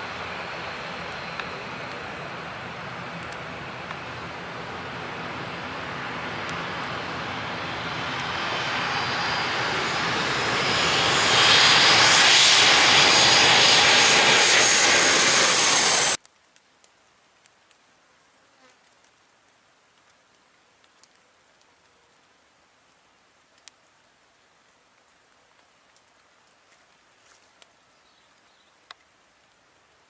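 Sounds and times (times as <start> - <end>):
high engine whine rising: 0.0 - 16.2
jet airliner passing overhead: 0.0 - 16.2.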